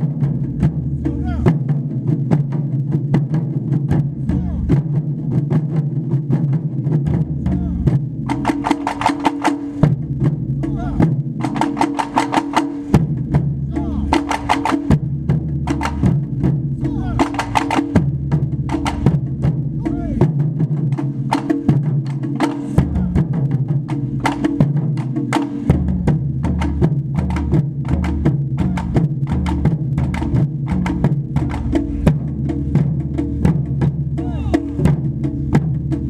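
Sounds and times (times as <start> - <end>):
drum ensemble playing: 0.0 - 36.0.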